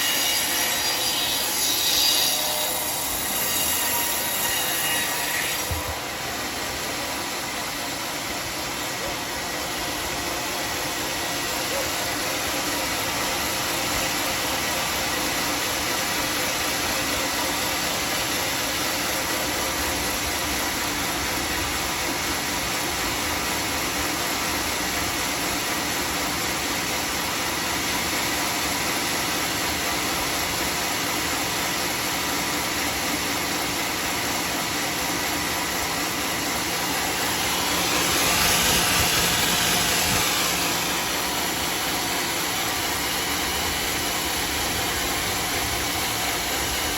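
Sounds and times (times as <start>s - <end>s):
sawmill sawing wood: 0.0s - 46.9s.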